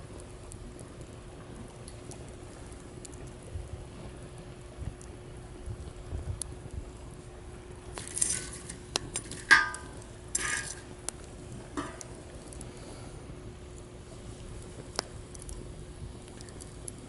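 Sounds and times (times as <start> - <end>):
campfire crackling: 0.0 - 17.0
fire hissing: 0.0 - 17.0.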